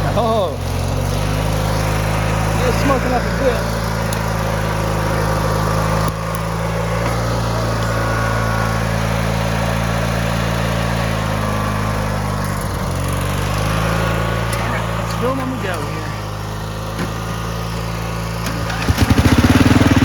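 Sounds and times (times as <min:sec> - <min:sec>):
riding lawn mower engine running: 0:00.0 - 0:20.0.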